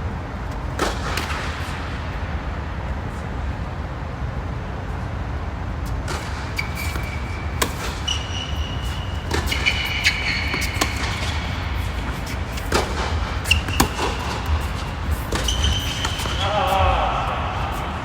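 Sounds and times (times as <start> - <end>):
traffic rumble: 0.0 - 18.0
tennis balls struck by rackets: 0.6 - 1.8, 6.0 - 18.0
shoe squeaks: 6.2 - 17.0.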